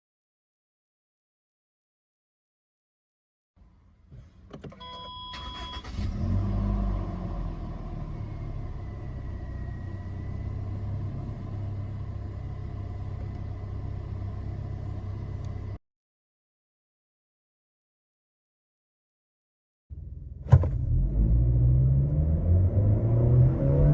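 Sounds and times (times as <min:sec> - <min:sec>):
car engine starting and idling: 0:03.6 - 0:15.8
short beep: 0:04.8 - 0:05.9.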